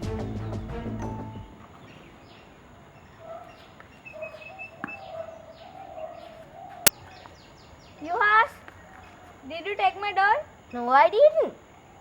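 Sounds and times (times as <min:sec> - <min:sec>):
birds chirping: 0:01.7 - 0:10.9.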